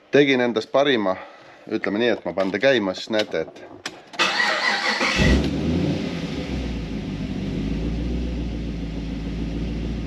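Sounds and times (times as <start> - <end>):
car engine starting and idling: 4.1 - 10.0
starter motor cranking: 4.2 - 5.6.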